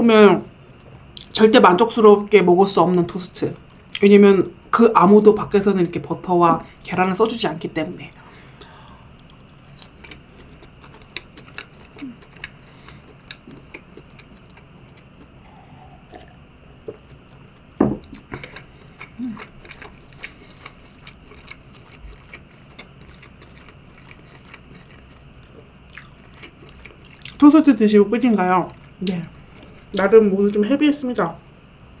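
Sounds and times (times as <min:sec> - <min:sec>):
chewing with wet mouth clicks: 0:08.6 - 0:27.4.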